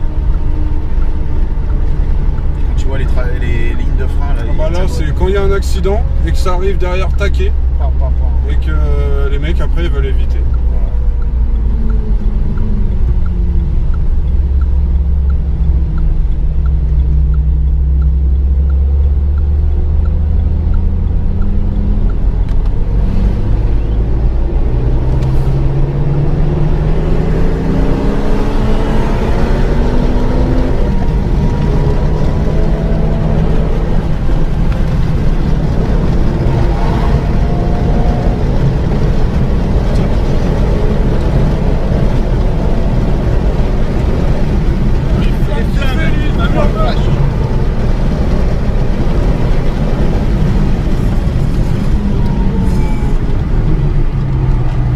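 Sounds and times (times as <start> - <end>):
light regular ticking: 0.0 - 23.3
car engine accelerating: 0.0 - 54.9
road and wind noise: 0.0 - 54.9.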